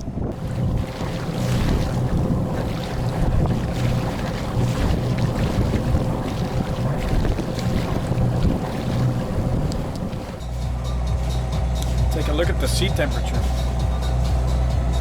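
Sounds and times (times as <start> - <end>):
boat engine humming: 0.0 - 15.0
wind on microphone: 0.0 - 15.0.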